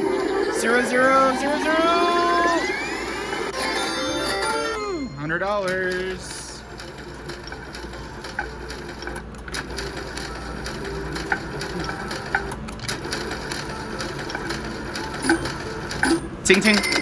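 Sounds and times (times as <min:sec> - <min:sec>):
short high chimes: 0:00.0 - 0:05.6
casino background noise: 0:00.0 - 0:17.0
slot machine reels clicking: 0:00.0 - 0:17.0.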